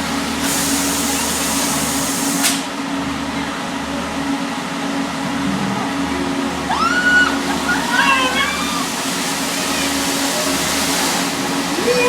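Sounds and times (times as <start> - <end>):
ride machinery humming: 2.7 - 12.0.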